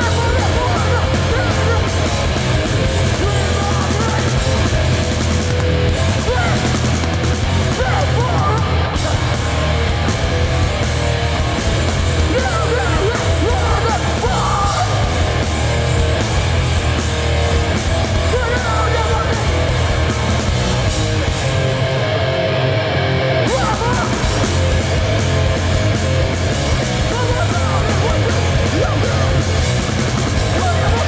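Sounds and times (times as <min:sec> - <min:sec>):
shouted vocals: 0:00.0 - 0:04.7, 0:06.0 - 0:06.9, 0:07.5 - 0:10.1, 0:12.1 - 0:15.7, 0:18.1 - 0:20.9, 0:23.4 - 0:24.8, 0:26.8 - 0:29.8, 0:30.4 - 0:31.0
punk band playing live: 0:00.0 - 0:31.0.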